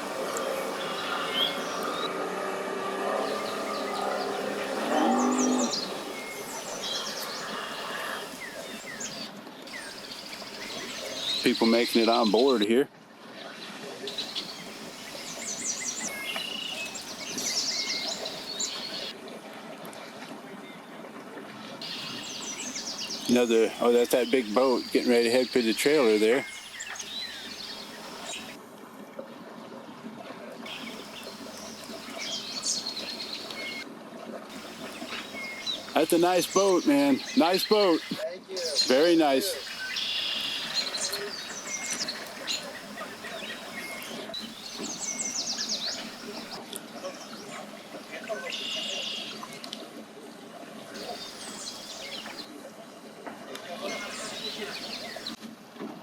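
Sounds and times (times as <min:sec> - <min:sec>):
boat engine droning: 0:00.0 - 0:09.3, 0:34.5 - 0:46.6
birds chirping: 0:00.0 - 0:12.8, 0:14.1 - 0:19.2, 0:21.8 - 0:28.6, 0:30.7 - 0:33.8, 0:34.5 - 0:49.5, 0:50.9 - 0:52.5, 0:53.8 - 0:55.4
river water flowing: 0:00.0 - 0:56.0.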